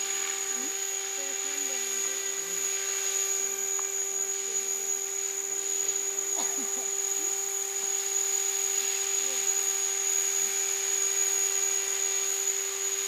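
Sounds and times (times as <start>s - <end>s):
model helicopter rotor whine: 0.0s - 13.0s.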